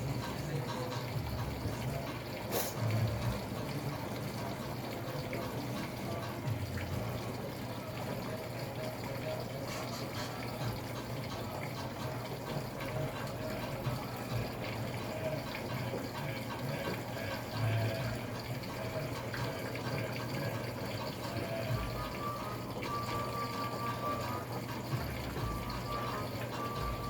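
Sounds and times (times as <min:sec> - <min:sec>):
water rushing into washing machine: 0:00.0 - 0:27.0.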